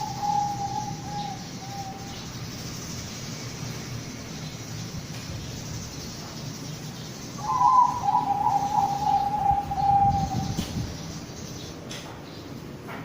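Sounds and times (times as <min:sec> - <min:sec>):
dove cooing: 0:00.0 - 0:02.2, 0:07.4 - 0:10.8.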